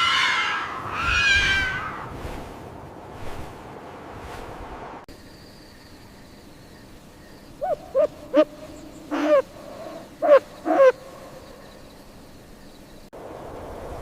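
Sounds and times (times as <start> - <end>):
owl hooting: 7.6 - 8.5, 9.1 - 11.0.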